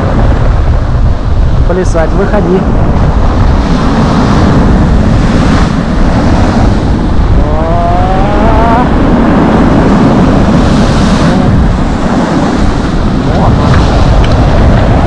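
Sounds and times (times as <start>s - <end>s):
storm surf breaking: 0.0s - 15.0s
wind buffeting microphone: 0.0s - 15.0s
rising voice-like tone: 7.3s - 9.0s.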